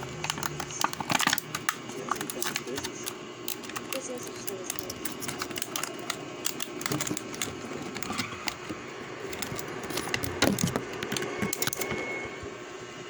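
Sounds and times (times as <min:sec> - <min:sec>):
plastic pieces clicking and rattling: 0:00.0 - 0:12.0.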